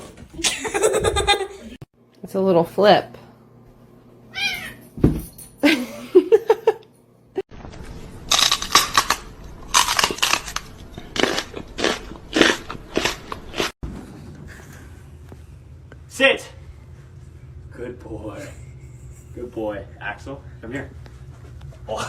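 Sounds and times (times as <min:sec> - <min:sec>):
thump: 0:05.0 - 0:05.3
crunching: 0:08.2 - 0:13.7.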